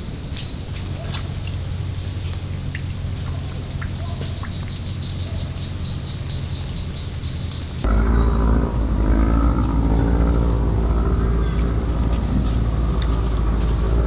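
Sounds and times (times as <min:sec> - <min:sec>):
insect trill: 0:00.0 - 0:14.0
low steady hum: 0:00.0 - 0:14.0
faint clicks: 0:09.4 - 0:14.0.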